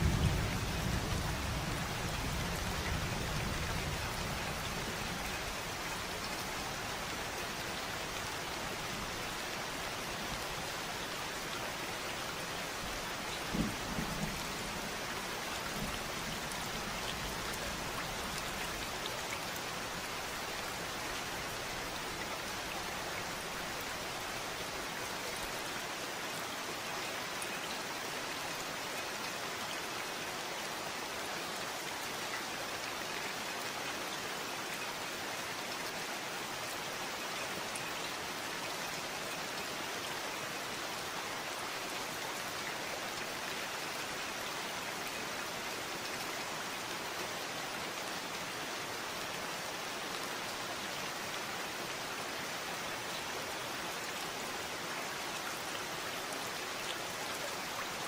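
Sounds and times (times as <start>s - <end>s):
rain pattering: 0.0s - 25.8s.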